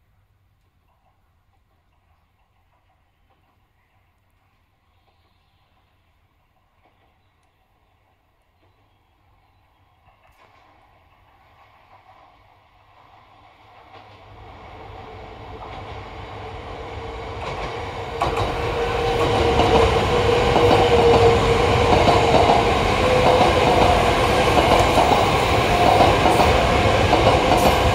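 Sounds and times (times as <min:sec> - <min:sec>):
rush of train wheels on rail: 0:10.0 - 0:27.9
train cars clattering: 0:15.3 - 0:27.9.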